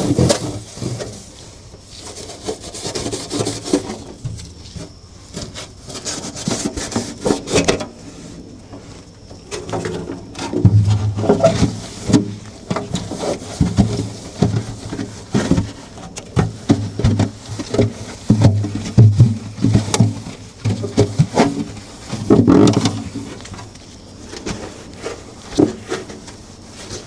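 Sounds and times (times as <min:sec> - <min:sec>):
scrubbing on refrigerator surface: 0:01.9 - 0:04.2.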